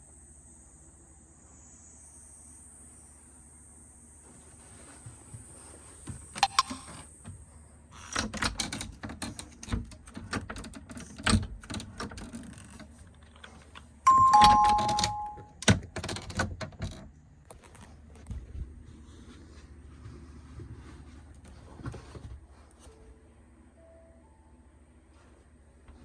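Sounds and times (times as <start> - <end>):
two-tone electronic chime: 14.1 - 15.6.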